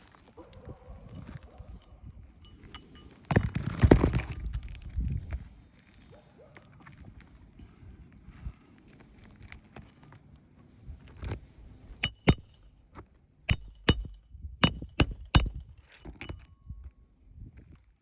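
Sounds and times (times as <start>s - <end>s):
hammer striking steel: 12.0s - 12.6s, 13.5s - 16.4s.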